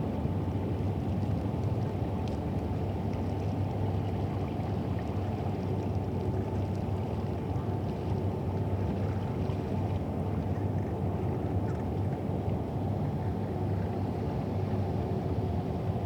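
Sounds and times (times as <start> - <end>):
faint light ticks: 2.2 - 2.4.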